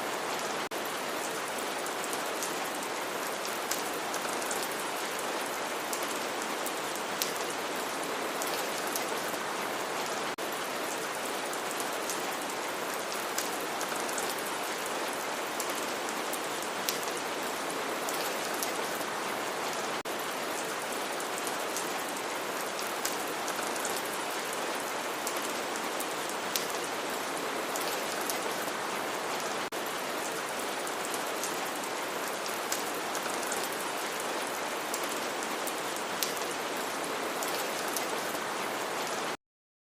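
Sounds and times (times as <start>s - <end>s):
steady rain: 0.0s - 39.4s
raindrops ticking on a surface: 20.0s - 27.0s, 29.6s - 38.1s.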